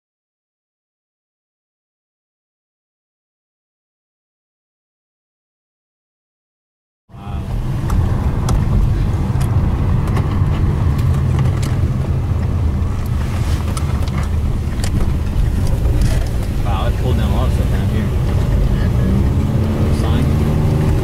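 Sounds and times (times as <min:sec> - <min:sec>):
car engine and road rumble: 0:07.1 - 0:21.0.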